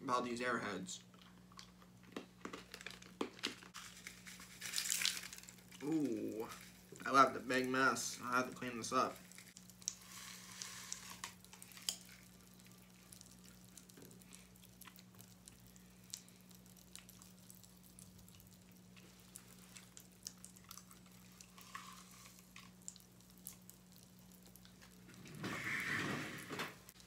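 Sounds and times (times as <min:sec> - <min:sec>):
candy crackling while eaten: 0:00.9 - 0:25.4.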